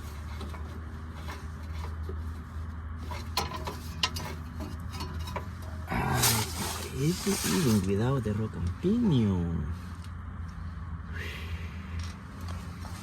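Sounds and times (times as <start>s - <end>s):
metallic clinks and scrapes: 0.0s - 7.9s
steady low hum: 0.0s - 13.0s.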